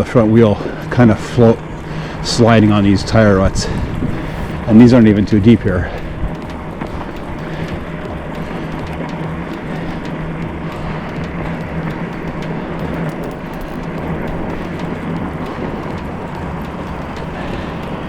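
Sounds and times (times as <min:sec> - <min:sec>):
low motor hum: 0:00.0 - 0:18.0
tires on snow: 0:00.0 - 0:18.0
wind: 0:00.0 - 0:18.0
faint ticks: 0:04.0 - 0:18.0.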